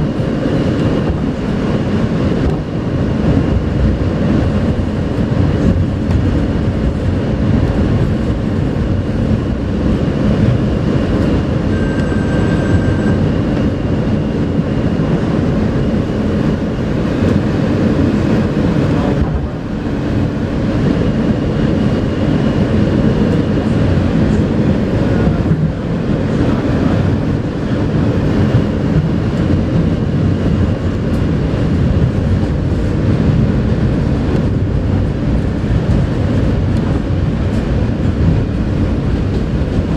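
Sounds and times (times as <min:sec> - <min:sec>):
subway car wheels rumbling on rail: 0:00.0 - 0:39.9
faint high whines: 0:11.6 - 0:13.5
brief high tone: 0:11.7 - 0:13.3.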